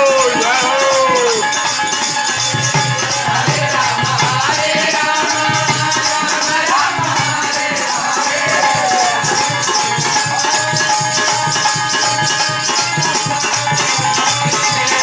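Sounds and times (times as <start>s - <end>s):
gliding vocal-like line: 0.0s - 1.6s, 6.2s - 9.6s
hand percussion beat: 0.0s - 15.0s.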